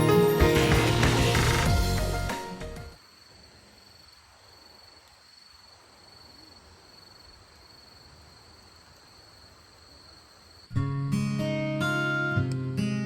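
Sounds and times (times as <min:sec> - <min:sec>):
background music: 0:00.0 - 0:03.0
insects trilling: 0:03.0 - 0:10.7.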